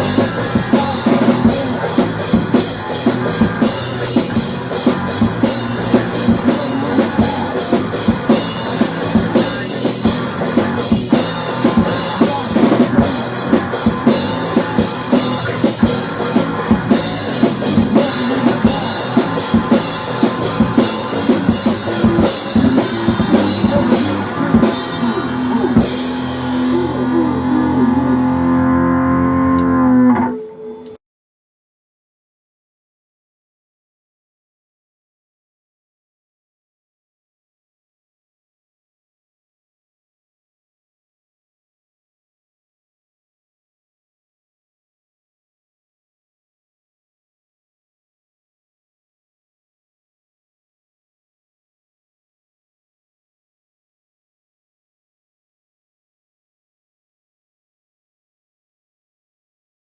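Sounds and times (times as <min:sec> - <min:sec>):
drum kit: 0:00.0 - 0:27.6
electric guitar: 0:00.0 - 0:31.0.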